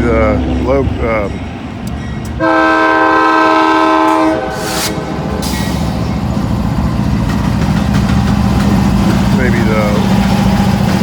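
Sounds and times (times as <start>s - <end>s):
train engine rumbling: 0.0s - 11.0s
locomotive air horn blast: 2.4s - 6.0s.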